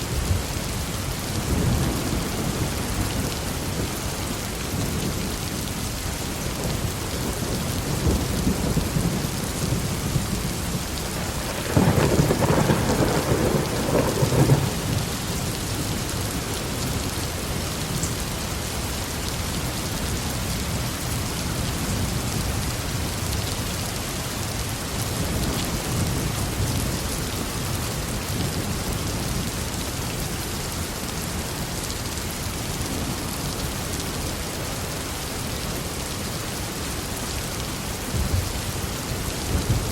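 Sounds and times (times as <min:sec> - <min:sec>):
heavy rain: 0:00.0 - 0:39.9
thunder rumbling: 0:07.2 - 0:17.0
sharp thunderclap: 0:11.4 - 0:15.1.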